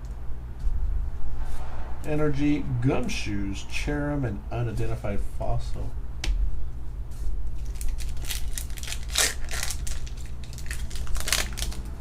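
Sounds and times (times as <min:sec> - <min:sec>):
foil wrapper crinkling and tearing: 0:07.6 - 0:12.0.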